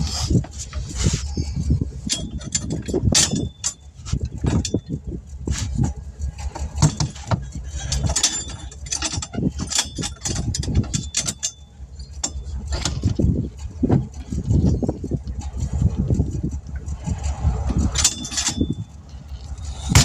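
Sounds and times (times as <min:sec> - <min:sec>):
steady low rumble: 0:00.0 - 0:20.0
metal tools clinking: 0:02.0 - 0:05.0, 0:06.5 - 0:13.2, 0:17.9 - 0:20.0.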